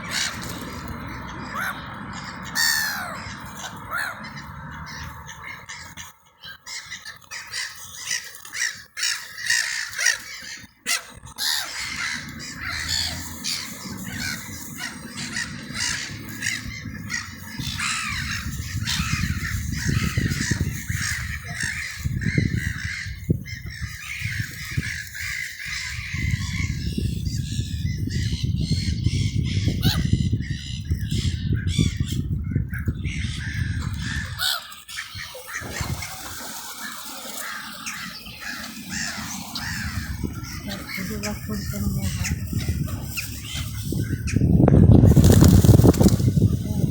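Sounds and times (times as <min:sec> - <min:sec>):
crows cawing: 0:02.5 - 0:26.4, 0:33.1 - 0:41.5.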